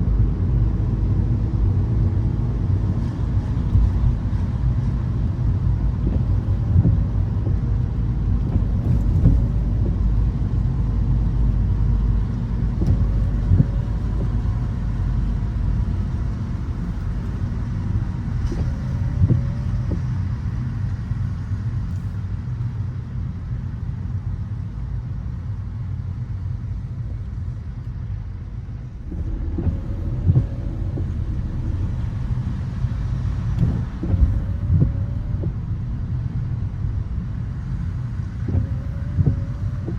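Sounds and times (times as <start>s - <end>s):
road and engine rumble: 0.0s - 39.9s
short thumps: 12.7s - 14.7s, 29.0s - 35.7s, 38.4s - 39.9s.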